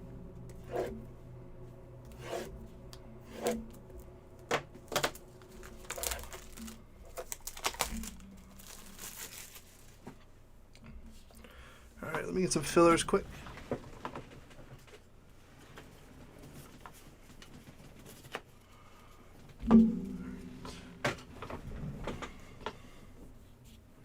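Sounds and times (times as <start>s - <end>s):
packaging crinkling: 5.0s - 10.1s
packaging rustling and tearing: 5.0s - 10.1s.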